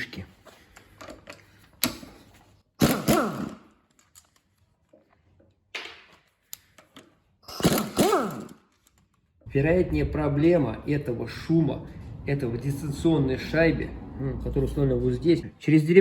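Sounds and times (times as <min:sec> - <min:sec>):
power tool driving bolts: 0:02.8 - 0:03.7, 0:07.4 - 0:08.9.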